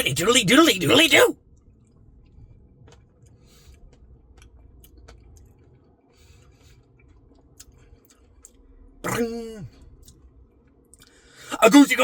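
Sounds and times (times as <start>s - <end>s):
quiet chewing: 1.6s - 8.6s, 9.7s - 11.2s.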